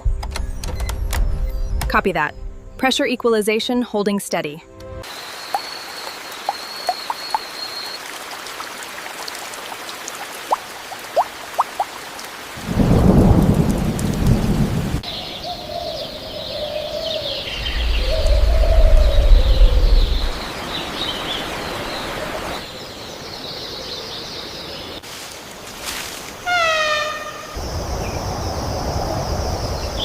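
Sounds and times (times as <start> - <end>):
steady rain: 5.0 - 15.5, 17.6 - 26.5, 27.4 - 30.0
raindrops ticking: 5.4 - 15.0
thunder rumbling: 12.6 - 15.1, 17.4 - 20.4, 27.6 - 30.0.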